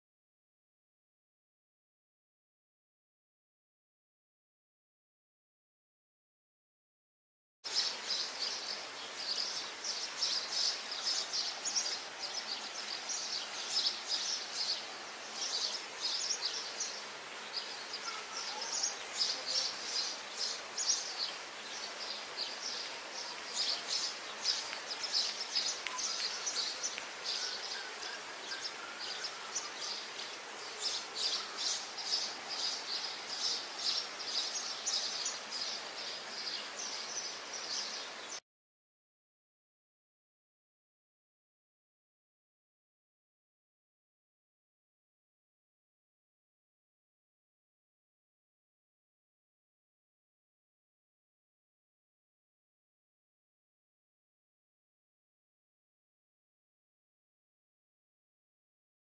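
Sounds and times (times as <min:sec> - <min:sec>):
faint background hiss: 0:07.7 - 0:38.4
small birds chirping: 0:07.7 - 0:38.4.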